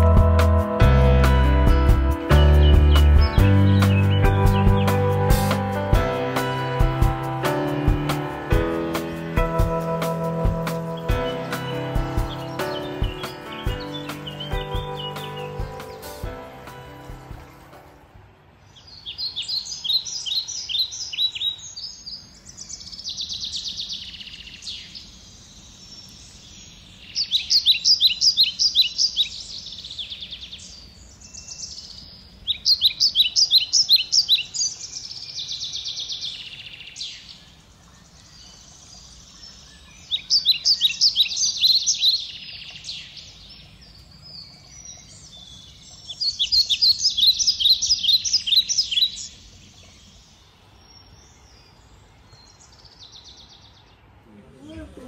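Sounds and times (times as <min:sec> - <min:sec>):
songbird rapid high phrases: 0:10.0 - 0:16.3.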